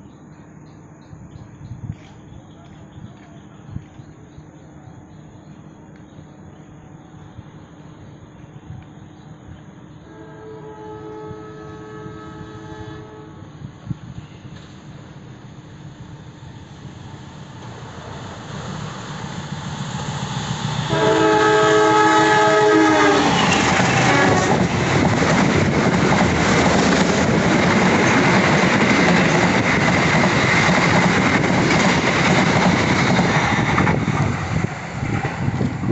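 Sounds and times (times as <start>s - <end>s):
train horn: 10.0s - 13.7s, 20.8s - 24.8s
train coaches rumbling and clattering: 13.4s - 35.9s.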